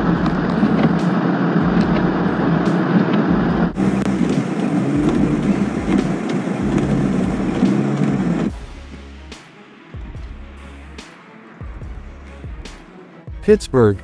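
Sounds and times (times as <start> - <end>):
vehicle noise with low hum: 0.0 - 8.9.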